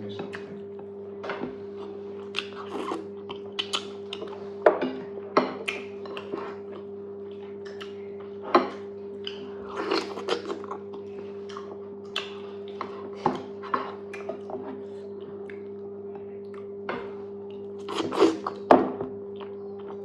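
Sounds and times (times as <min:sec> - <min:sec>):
steady low hum: 0:00.0 - 0:20.0
wet chewing and mouth smacks: 0:01.9 - 0:04.4, 0:05.6 - 0:08.2, 0:09.2 - 0:12.8, 0:14.0 - 0:14.5.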